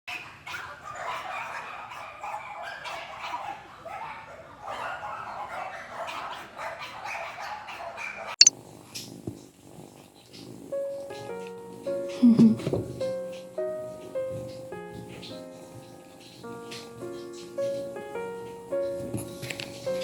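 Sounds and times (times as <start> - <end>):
small pet animals yipping: 0.1 - 8.4.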